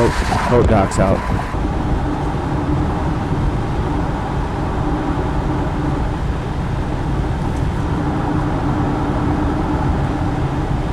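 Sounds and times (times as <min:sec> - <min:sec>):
car road noise at highway speed: 0:00.0 - 0:10.9.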